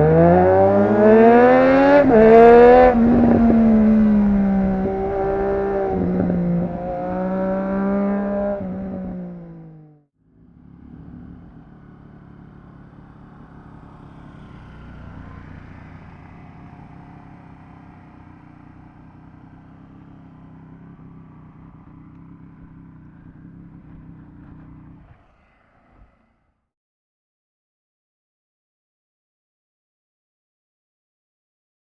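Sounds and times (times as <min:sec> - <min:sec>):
motorcycle engine under throttle: 0:00.0 - 0:26.5
quiet steady engine note: 0:10.2 - 0:26.4.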